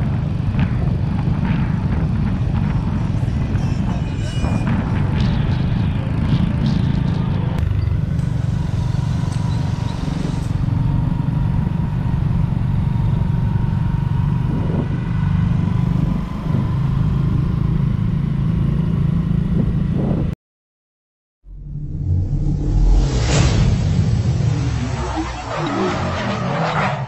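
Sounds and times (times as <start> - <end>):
motorcycle engines cruising: 0.0 - 20.3
wind rumble on microphone: 0.0 - 20.4.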